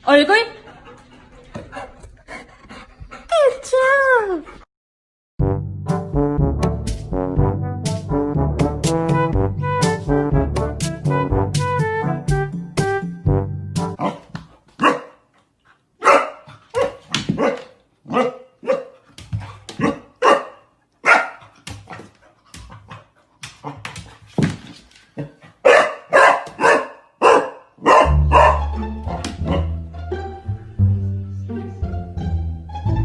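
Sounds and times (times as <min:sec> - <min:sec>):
background music: 0:05.4 - 0:14.0, 0:27.9 - 0:33.0
dog barking: 0:14.0 - 0:15.3, 0:16.0 - 0:19.0, 0:19.8 - 0:21.5, 0:25.6 - 0:28.7.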